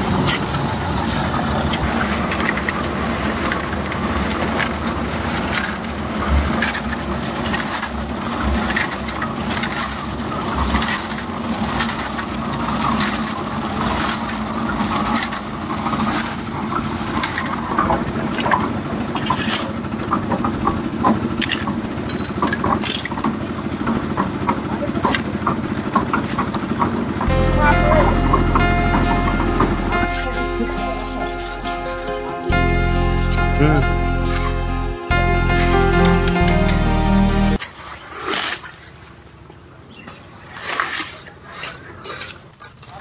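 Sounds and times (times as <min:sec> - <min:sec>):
machine engine running: 0:00.0 - 0:37.6
clattering knocks and crunching: 0:01.6 - 0:27.3.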